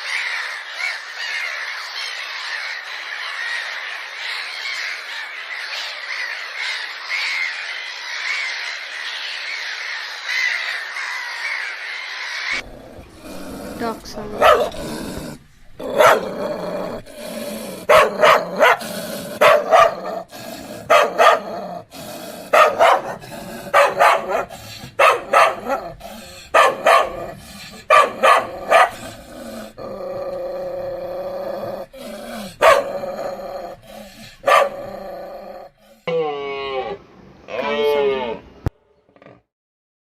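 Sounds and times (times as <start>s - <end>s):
dog barking: 13.4s - 15.0s, 15.8s - 17.0s, 17.8s - 21.6s, 22.5s - 29.2s, 32.4s - 33.2s, 34.4s - 34.9s.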